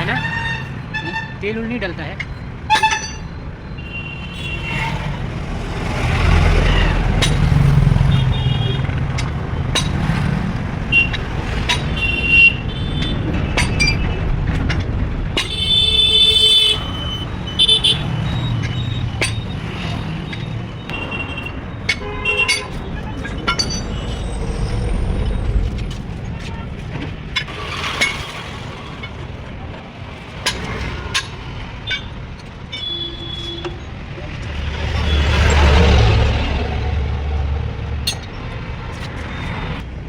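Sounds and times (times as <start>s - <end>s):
engines rumbling: 0.0s - 40.0s
vehicle horn toots: 2.7s - 3.2s, 8.0s - 8.9s, 15.4s - 18.9s, 20.9s - 22.8s, 32.7s - 33.8s.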